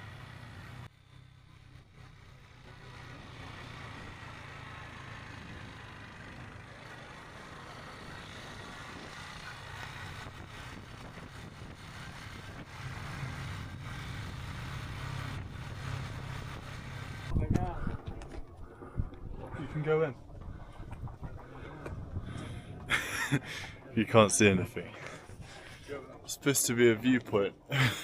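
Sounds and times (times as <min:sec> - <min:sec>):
motorbike engine running: 0:00.0 - 0:17.9.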